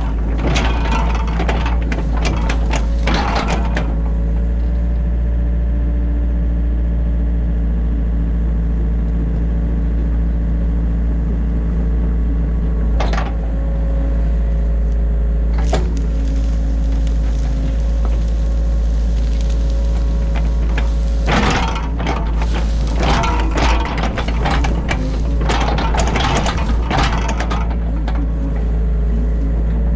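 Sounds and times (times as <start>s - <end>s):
clattering knocks: 0.0s - 4.5s, 15.5s - 28.8s
excavator diesel engine running: 0.0s - 29.9s.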